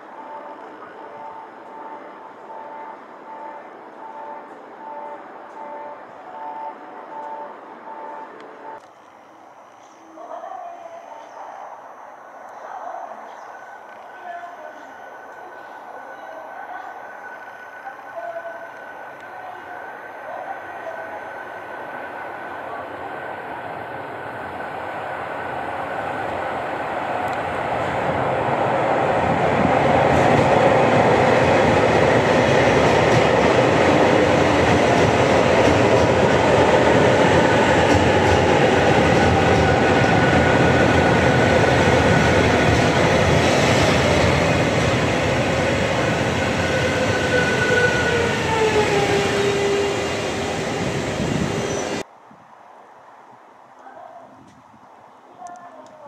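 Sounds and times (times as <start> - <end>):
train wheels on rails: 25.5 - 52.1.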